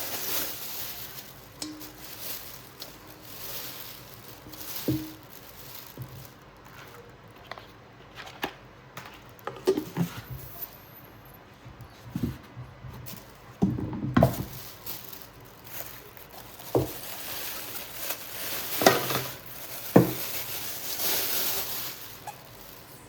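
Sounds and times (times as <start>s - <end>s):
packaging rustling: 0.0s - 10.6s, 13.0s - 23.0s
metal bowls knocking and clinking: 1.6s - 3.0s, 4.4s - 5.3s.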